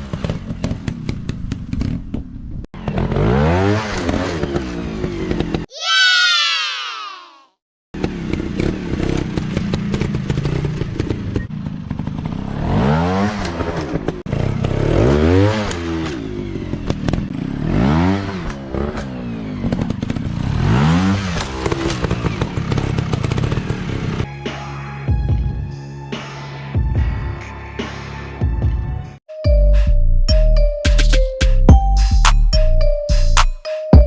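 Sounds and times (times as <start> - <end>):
dirt bike engines revving: 2.8 - 6.1, 8.0 - 24.3.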